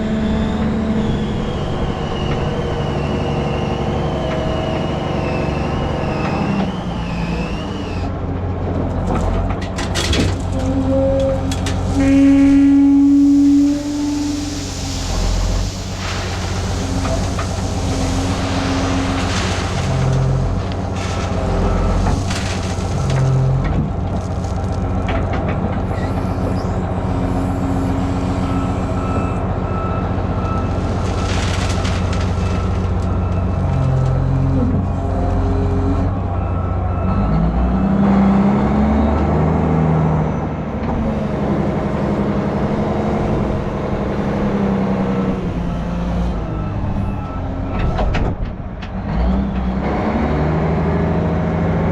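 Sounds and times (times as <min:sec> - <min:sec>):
heavy diesel engine running: 0:00.0 - 0:37.8.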